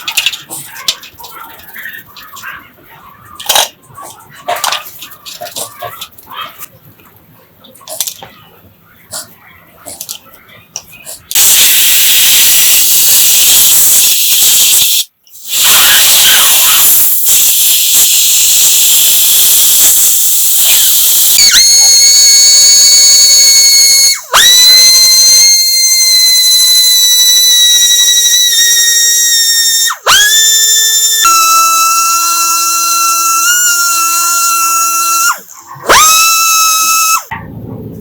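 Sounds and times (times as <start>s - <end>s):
compressed air hissing: 14.1s - 19.4s.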